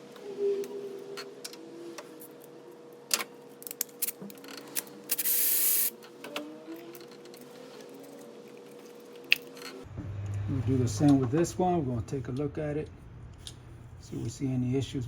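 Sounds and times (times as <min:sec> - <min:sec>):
burst of hissing: 0:05.2 - 0:05.9.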